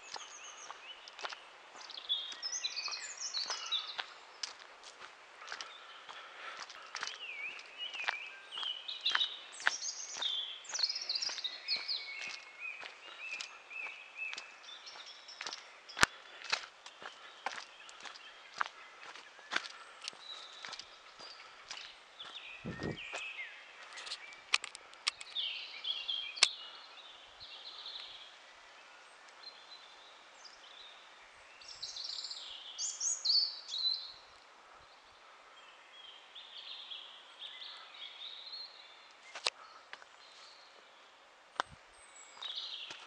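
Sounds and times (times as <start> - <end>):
faint outdoor hiss: 0.0 - 43.0
small birds chirping: 0.0 - 43.0
sharp clicks: 24.4 - 25.4.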